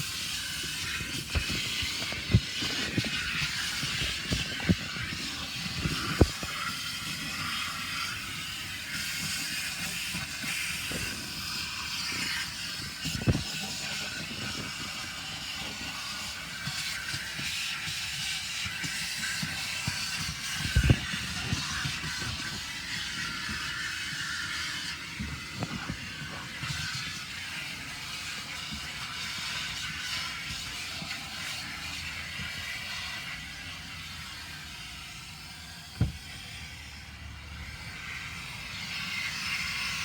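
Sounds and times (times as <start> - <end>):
car wash equipment hissing: 0.0 - 40.0
knocks and thumps: 36.0 - 36.3.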